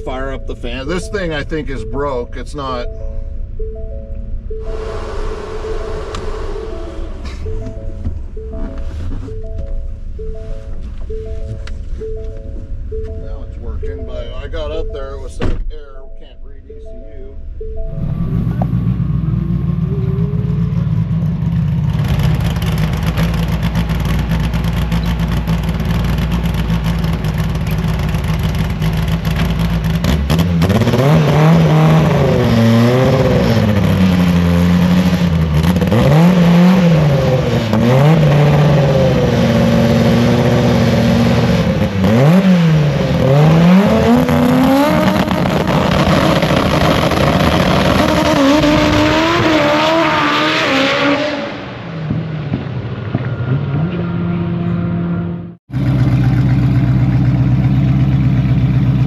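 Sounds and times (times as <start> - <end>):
car engine idling and revving: 0.0 - 15.8, 16.5 - 59.0.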